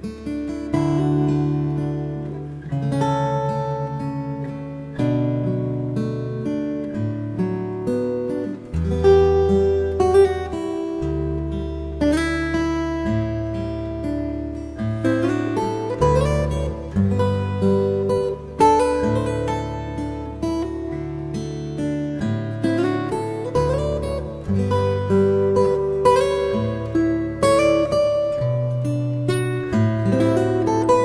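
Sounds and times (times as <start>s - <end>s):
acoustic guitar chords: 0.0s - 31.0s.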